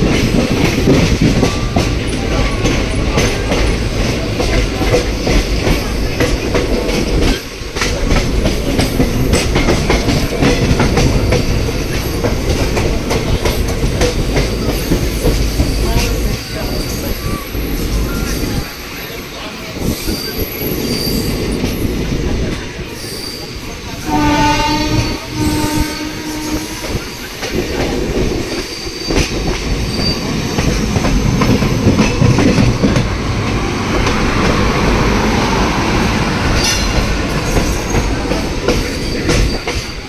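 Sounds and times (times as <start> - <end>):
train wheels rumbling on rails: 0.0 - 40.0
train horn blasts: 24.0 - 27.0.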